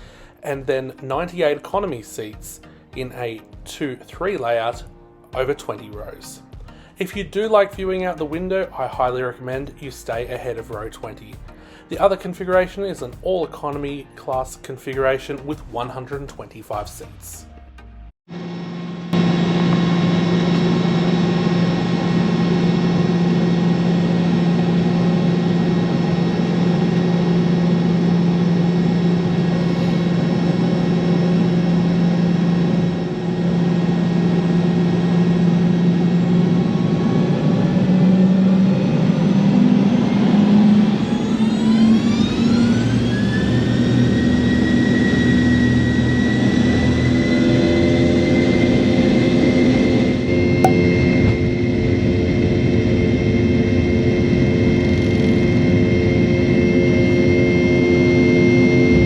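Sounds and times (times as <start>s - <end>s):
jet engine hum: 18.3s - 59.0s
jet engines spooling up whine: 18.3s - 59.0s.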